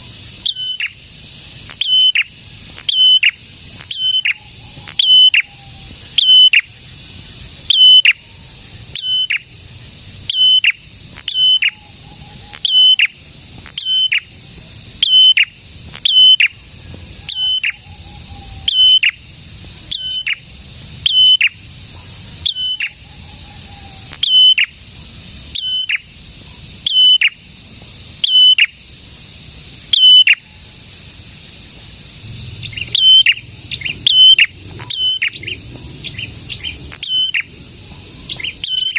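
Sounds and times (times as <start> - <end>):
songbird calling sharp high notes: 0.0 - 7.0, 7.6 - 9.6, 10.2 - 14.4, 15.0 - 19.3, 19.9 - 21.7, 22.4 - 24.8, 25.6 - 26.1, 26.9 - 27.5, 28.2 - 28.8, 29.8 - 30.6, 32.2 - 37.6, 38.2 - 38.9
faint steady high hiss: 0.0 - 38.9.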